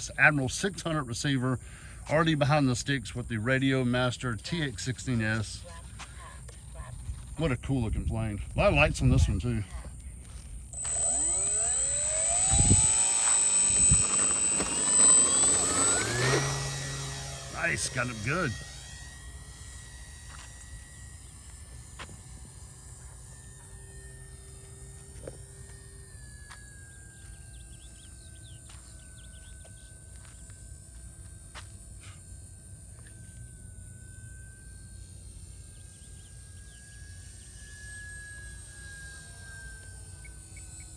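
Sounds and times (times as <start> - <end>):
model plane motor whine: 0.0 - 40.9
high insect buzz: 10.3 - 40.9
high whistle: 10.8 - 40.9
bird chirps: 26.8 - 30.5, 34.9 - 37.8.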